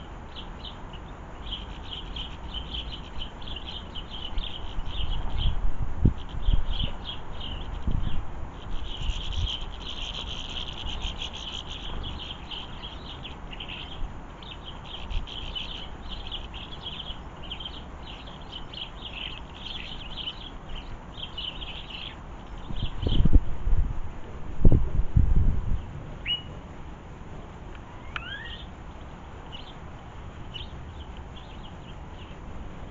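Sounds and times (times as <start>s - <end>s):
small birds twittering: 0.0s - 23.6s, 25.7s - 26.6s, 27.7s - 32.9s
wind buffeting microphone: 2.9s - 11.1s, 22.6s - 26.1s.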